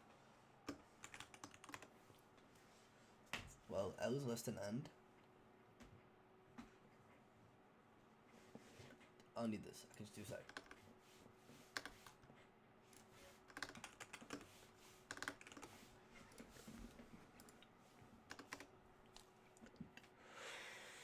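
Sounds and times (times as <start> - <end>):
faint steady hum: 0.0 - 21.0
typing on computer keyboard: 0.7 - 1.9, 10.0 - 10.8, 11.7 - 12.2, 12.9 - 20.1.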